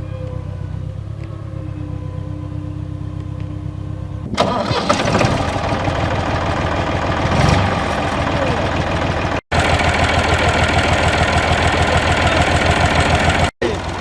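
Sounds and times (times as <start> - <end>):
diesel tractor engine starting: 0.0 - 14.0
low engine hum: 0.0 - 14.0.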